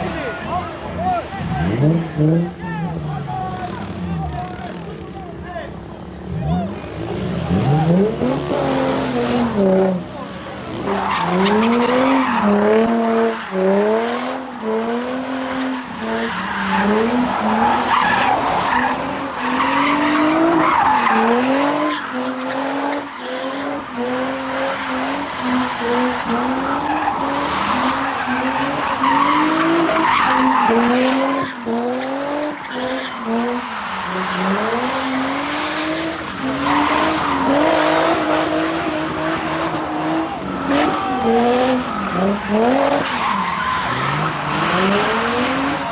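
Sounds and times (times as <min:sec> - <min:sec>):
car engine revving: 0:00.0 - 0:05.2, 0:05.8 - 0:45.9
tyres screeching: 0:10.8 - 0:45.8.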